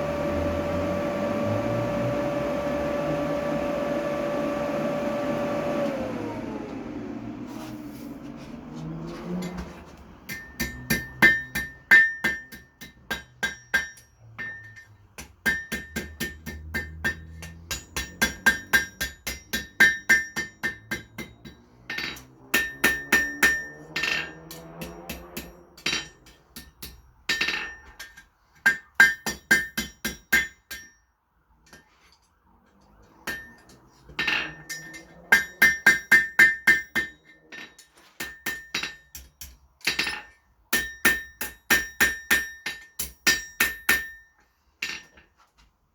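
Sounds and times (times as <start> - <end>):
hammer striking metal on anvil: 10.3 - 31.1, 33.2 - 45.2.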